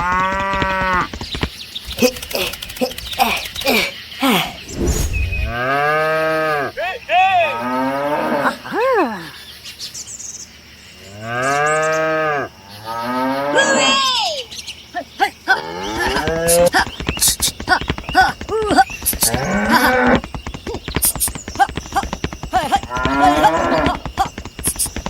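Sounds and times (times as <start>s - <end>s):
cattle mooing: 19.2s - 20.2s, 22.6s - 24.3s.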